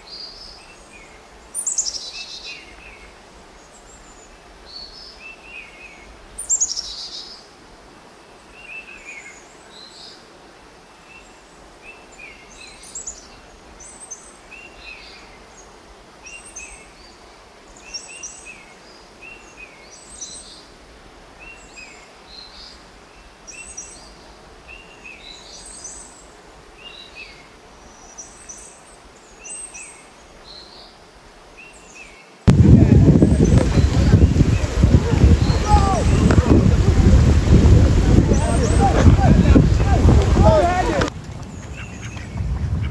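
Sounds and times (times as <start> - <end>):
faint background hiss: 0.0 - 42.9
birds chirping: 32.5 - 42.9.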